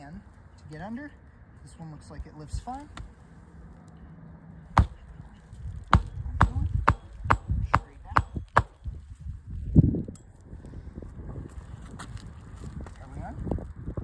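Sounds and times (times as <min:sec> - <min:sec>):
hammer striking nail: 0:04.8 - 0:05.0, 0:05.9 - 0:08.9.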